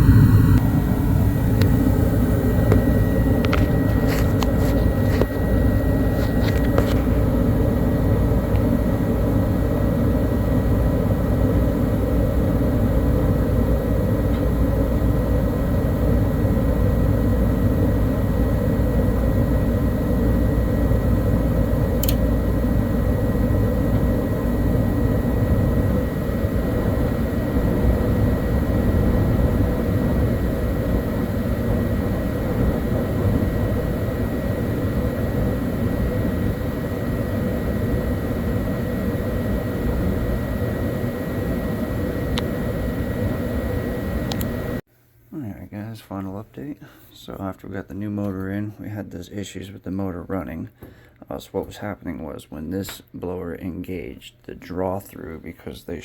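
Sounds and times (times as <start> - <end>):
furnace blower rushing and humming: 0.0 - 44.8
thin high whine: 0.0 - 45.7
sharp click: 22.0 - 22.2.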